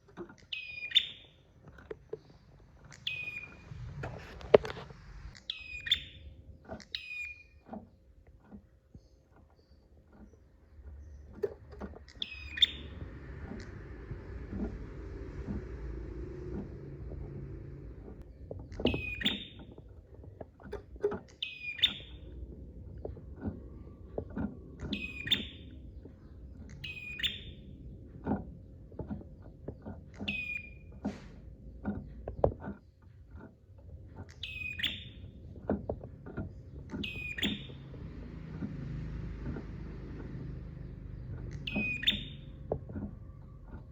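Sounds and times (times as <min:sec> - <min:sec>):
low hum: 0:09.0 - 0:43.9.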